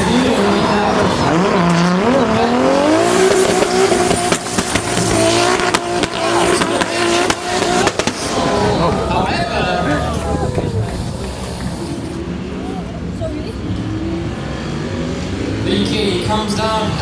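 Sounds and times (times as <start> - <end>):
car engine revving hard: 0.0 - 17.0
sharp cracks: 3.3 - 8.7
tyres screeching: 6.3 - 15.2.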